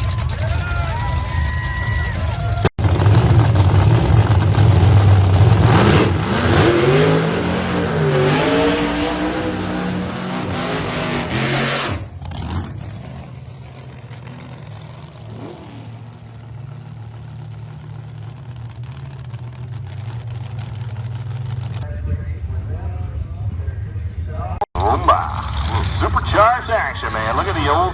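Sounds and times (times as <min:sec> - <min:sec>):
drag car engine idling: 0:00.0 - 0:05.7, 0:12.0 - 0:27.9
drag car engine revving: 0:00.0 - 0:21.9, 0:24.8 - 0:27.9.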